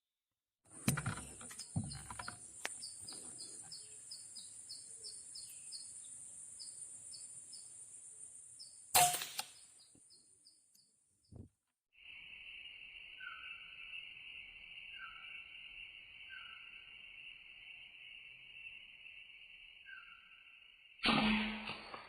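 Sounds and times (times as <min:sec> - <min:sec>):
small birds chirping: 0:00.7 - 0:20.7
high insect buzz: 0:01.0 - 0:10.6, 0:12.0 - 0:21.0
loud sharp crack: 0:08.9 - 0:09.6, 0:21.0 - 0:22.0.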